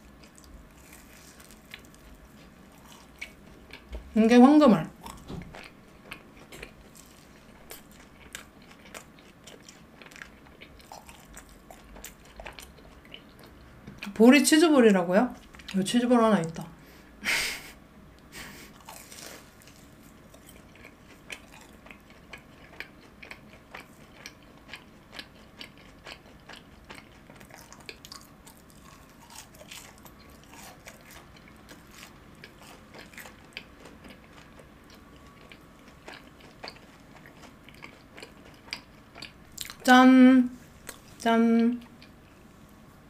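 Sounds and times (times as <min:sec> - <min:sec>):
crisp crunching chews: 0:00.1 - 0:03.9, 0:05.0 - 0:13.6, 0:18.8 - 0:39.8.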